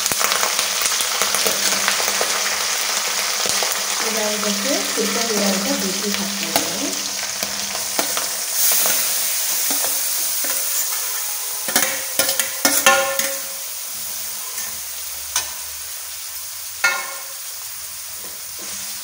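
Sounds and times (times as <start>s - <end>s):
vegetables sizzling in hot oil: 0.0s - 19.0s
metal clinks against pan: 11.7s - 13.5s, 16.8s - 17.3s.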